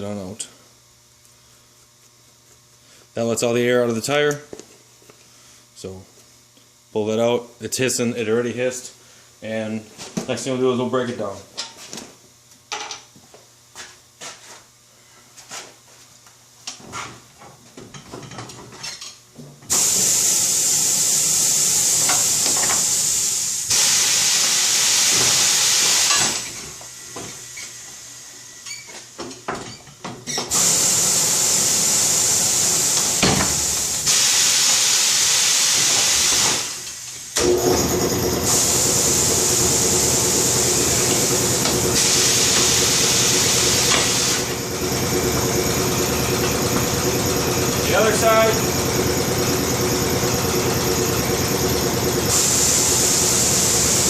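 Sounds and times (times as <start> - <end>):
compressed air hissing: 19.7 - 26.4, 30.5 - 36.8, 38.5 - 44.6, 52.3 - 54.0.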